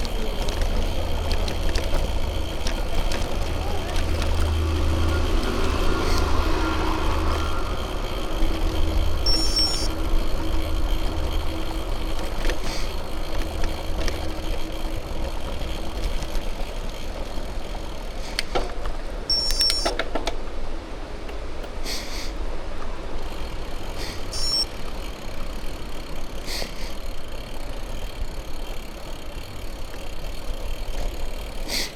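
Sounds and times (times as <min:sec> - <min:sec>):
low rumble: 0:00.0 - 0:18.1
bicycle tyres rolling on road: 0:00.0 - 0:31.9
bike clicks and rattles: 0:00.0 - 0:31.9.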